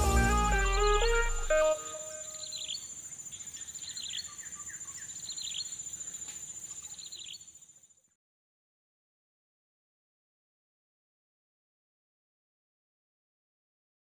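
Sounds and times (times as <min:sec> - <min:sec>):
birds chirping: 0:00.0 - 0:07.8
high insect trill: 0:00.6 - 0:08.1.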